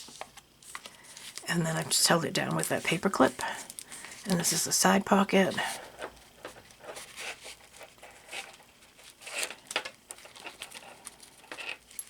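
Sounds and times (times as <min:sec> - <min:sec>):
paper rustling: 0:05.5 - 0:12.0.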